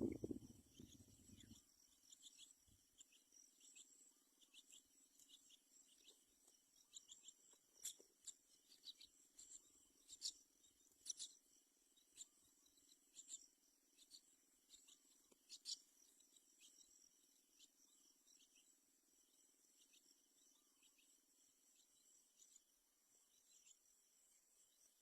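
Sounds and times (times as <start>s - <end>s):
low steady hum: 0.0s - 1.5s.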